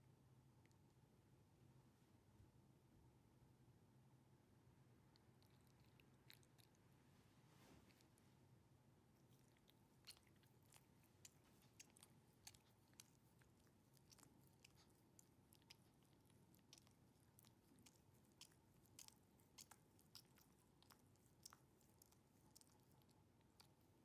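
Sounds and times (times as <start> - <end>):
dog licking fur: 9.2 - 24.0.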